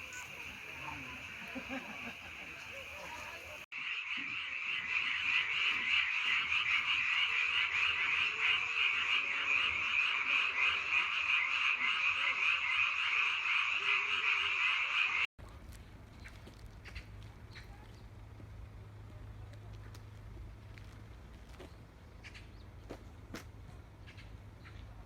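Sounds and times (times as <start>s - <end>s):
frogs calling: 0.0s - 15.3s.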